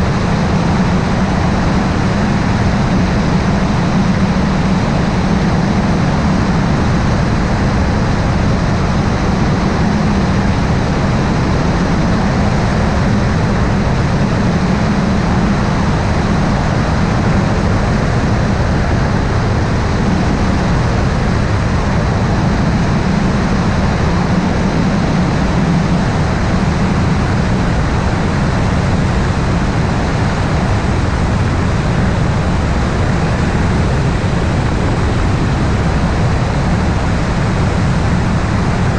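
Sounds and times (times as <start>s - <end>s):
helicopter engine and rotor: 0.0s - 38.9s.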